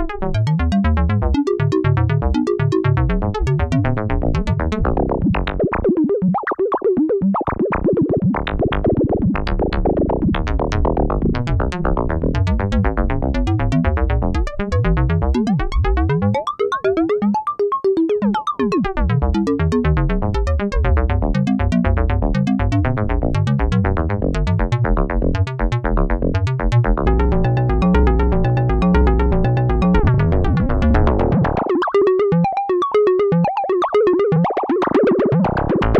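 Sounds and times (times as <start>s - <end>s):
low kick drum thumps: 26.9s - 31.6s
synthesizer percussive pitched hits: 27.0s - 32.4s.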